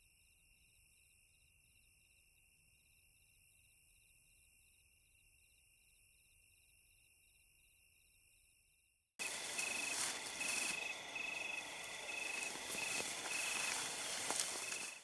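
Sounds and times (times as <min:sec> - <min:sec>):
cricket trilling: 0:09.2 - 0:15.0
faint high insect buzzing: 0:09.2 - 0:15.0
night insects chorus: 0:09.2 - 0:15.0.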